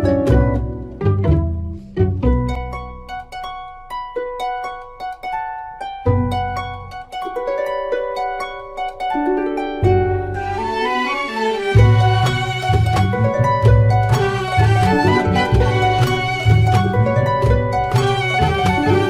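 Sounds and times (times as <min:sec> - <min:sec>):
low bass: 0:00.0 - 0:03.2, 0:06.0 - 0:07.0, 0:09.8 - 0:19.0
held string tones: 0:00.0 - 0:19.0
plucked harp-like string notes: 0:00.0 - 0:19.0.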